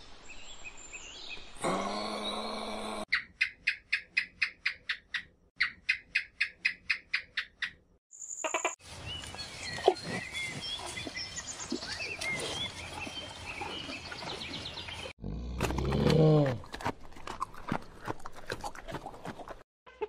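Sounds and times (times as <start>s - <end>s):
high animal chirps: 3.1s - 8.8s
bird chirps: 3.1s - 15.1s.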